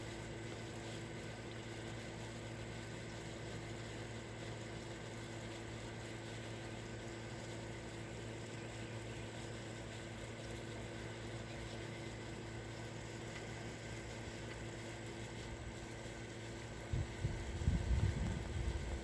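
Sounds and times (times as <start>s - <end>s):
faint steady hum: 0.0s - 19.0s
low even hum: 10.4s - 19.0s.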